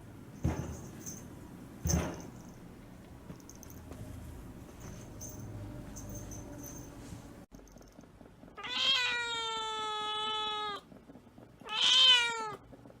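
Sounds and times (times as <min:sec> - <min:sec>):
kitten meowing: 0:08.6 - 0:10.8.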